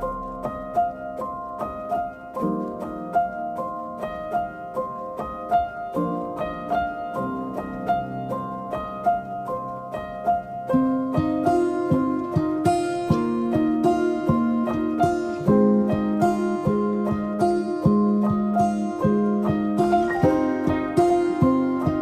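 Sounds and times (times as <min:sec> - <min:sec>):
gentle plucked melody: 0:10.7 - 0:22.0.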